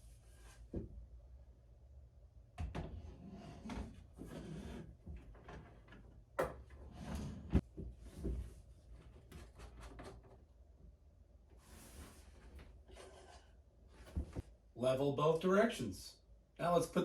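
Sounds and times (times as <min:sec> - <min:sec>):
wooden objects scraping on desk: 0:02.8 - 0:05.2, 0:06.8 - 0:07.6.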